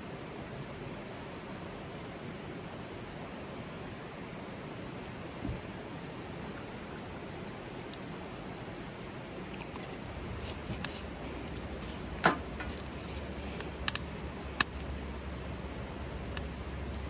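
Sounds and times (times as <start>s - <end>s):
steady hiss: 0.0s - 17.0s
sharp clicks or snaps: 13.6s - 15.0s.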